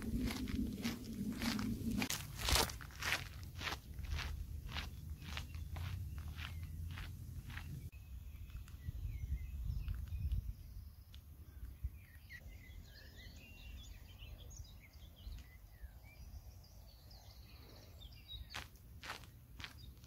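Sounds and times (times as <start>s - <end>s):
low rumble: 0.0s - 7.9s
songbirds chirping and trilling: 0.0s - 20.0s.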